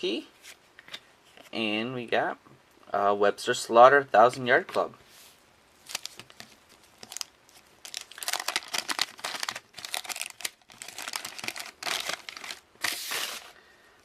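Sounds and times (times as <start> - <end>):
wax paper wrapper crinkling and tearing: 5.8 - 13.6.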